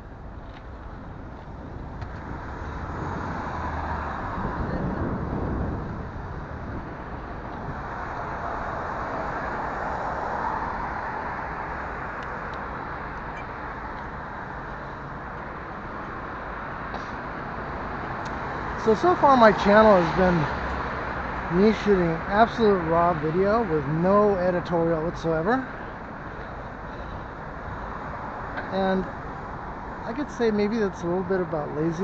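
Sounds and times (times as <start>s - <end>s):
road traffic noise: 0.0s - 32.0s
vehicles passing close by: 0.0s - 32.0s.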